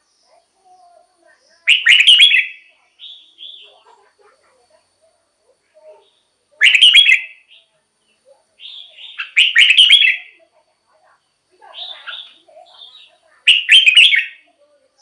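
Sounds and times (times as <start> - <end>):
bulbul warbling song: 1.6 - 3.8, 6.6 - 7.4, 8.6 - 10.3, 13.5 - 14.4.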